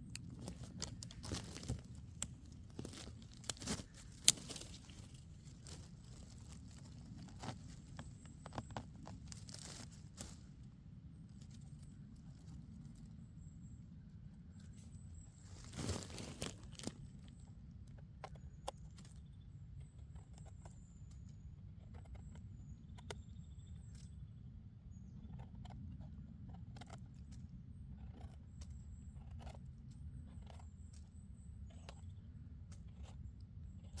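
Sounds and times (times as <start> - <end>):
twigs snapping: 0.0 - 10.5, 15.4 - 17.4
dry leaves and twigs crackling: 0.0 - 13.2, 14.2 - 19.2.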